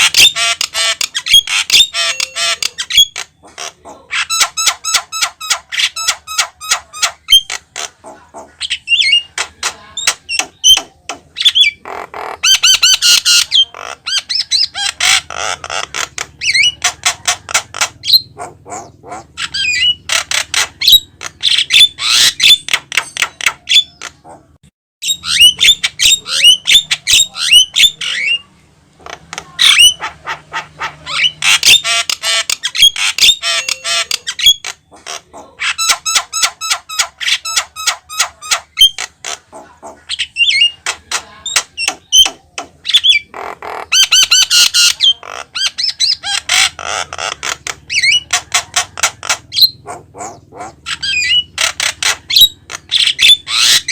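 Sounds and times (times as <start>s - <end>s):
myna bird chattering and squawking: 0.0s - 53.9s.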